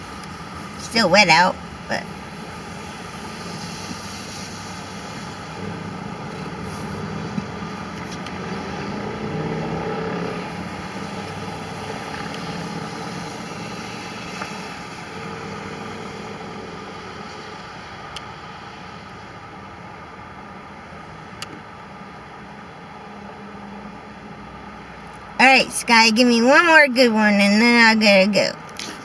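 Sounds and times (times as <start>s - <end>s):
vehicle passing on wet road: 0.0s - 21.3s
traffic hiss: 0.0s - 29.0s.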